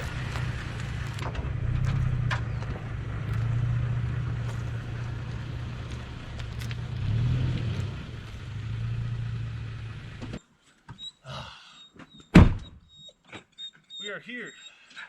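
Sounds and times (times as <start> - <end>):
road noise: 0.0 - 10.4
truck engine hum: 0.0 - 10.4.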